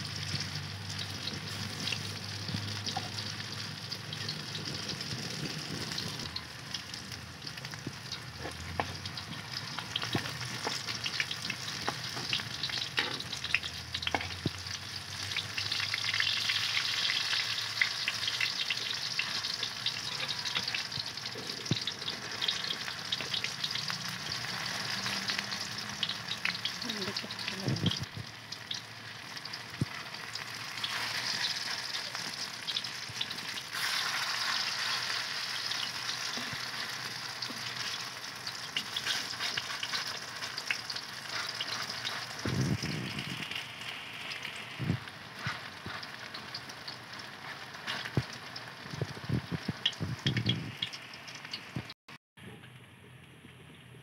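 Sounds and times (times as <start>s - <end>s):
oil sizzling and bubbling: 0.0s - 52.0s
metal spoon scraping wok: 41.2s - 42.5s.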